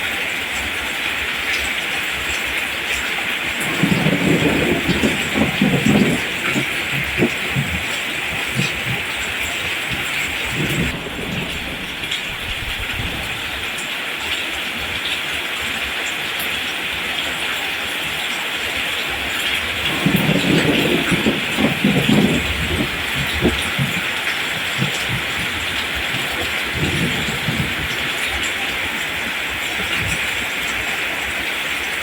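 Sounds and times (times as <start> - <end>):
steady rain falling: 0.0 - 32.0
low rumble: 3.6 - 13.7.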